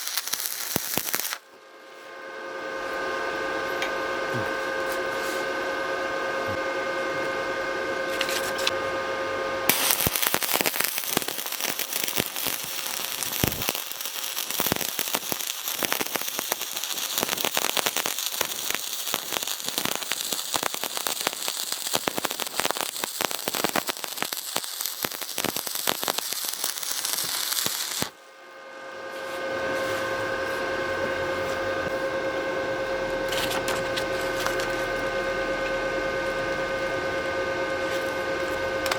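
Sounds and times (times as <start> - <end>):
welding arc crackling: 0.0 - 1.4, 9.7 - 28.2, 31.8 - 37.3
steady hum: 0.0 - 38.9.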